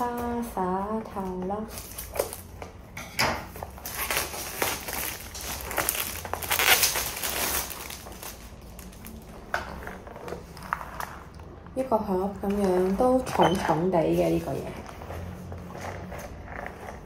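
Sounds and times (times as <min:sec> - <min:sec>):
packaging rustling and crinkling: 0:01.2 - 0:02.8, 0:03.5 - 0:11.6.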